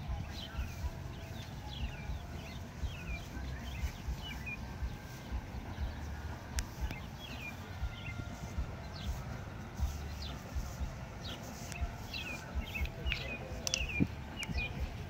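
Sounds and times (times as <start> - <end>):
songbirds chirping: 0.0 - 15.0
low thumps and rumble: 1.8 - 15.0
sharp click: 13.1 - 14.6.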